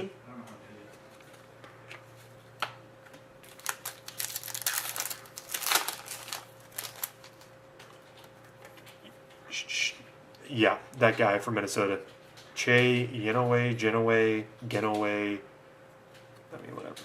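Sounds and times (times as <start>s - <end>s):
trading card pack crinkling: 3.4s - 8.9s.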